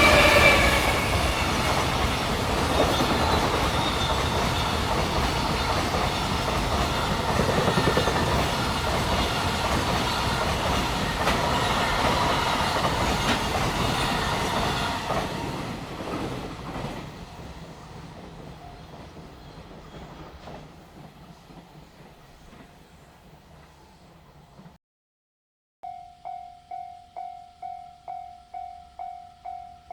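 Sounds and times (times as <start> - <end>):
freight train wheels clacking: 0.0 - 22.7.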